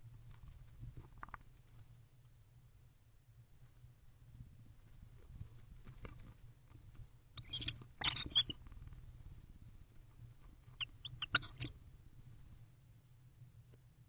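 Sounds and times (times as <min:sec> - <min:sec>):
owls scratching: 0:05.2 - 0:09.2, 0:10.4 - 0:11.8
owls chittering: 0:07.4 - 0:08.6, 0:10.7 - 0:11.8.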